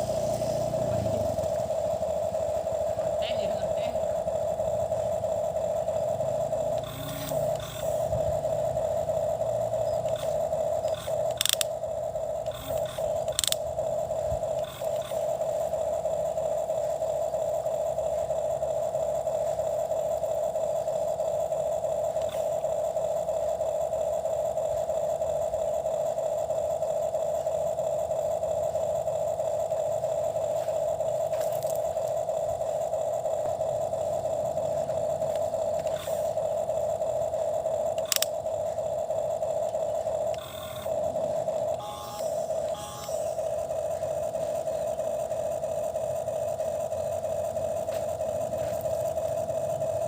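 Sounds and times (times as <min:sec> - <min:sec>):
toy excavator motor whine: 0:00.0 - 0:50.0
sharp clicks: 0:06.5 - 0:15.4, 0:34.6 - 0:41.0.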